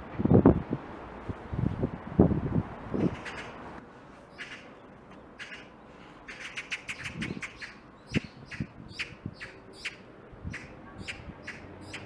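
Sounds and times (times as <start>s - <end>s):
small birds chirping: 4.3s - 12.0s.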